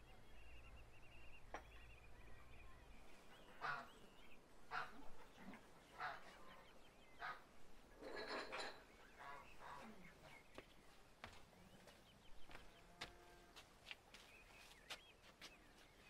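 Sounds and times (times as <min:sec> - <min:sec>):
bird harsh calls: 0:03.3 - 0:10.9.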